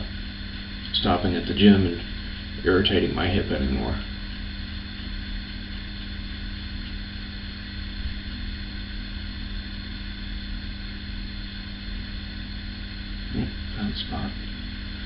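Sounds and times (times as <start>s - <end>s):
low hum: 0.0s - 15.0s
even hiss: 13.1s - 15.0s.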